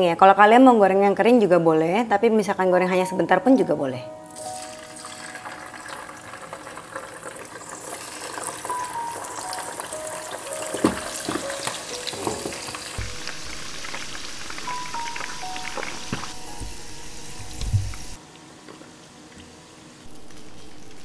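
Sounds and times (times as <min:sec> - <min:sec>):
deep-frying sizzle with crackles: 0:04.3 - 0:21.0.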